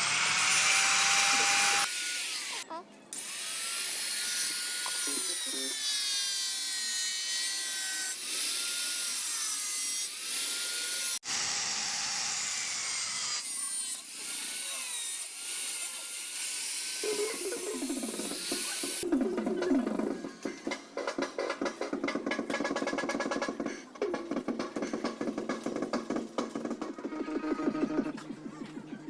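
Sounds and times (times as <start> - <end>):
handheld power tool grinding: 0.0 - 19.1.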